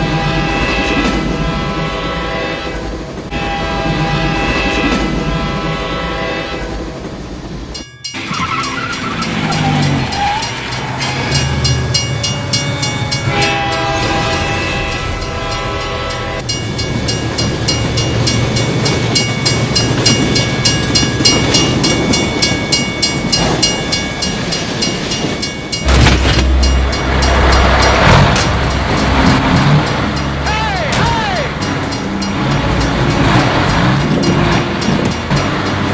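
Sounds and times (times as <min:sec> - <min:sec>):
train horn blasts: 0:00.0 - 0:06.8, 0:10.1 - 0:16.5
train wheels clattering: 0:07.6 - 0:35.9
loud low rumble: 0:25.8 - 0:30.5.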